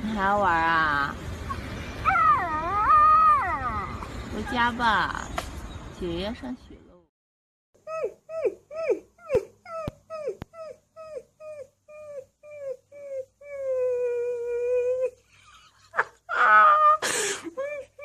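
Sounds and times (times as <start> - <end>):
puppy whining and howling: 1.5 - 4.2, 7.8 - 15.2.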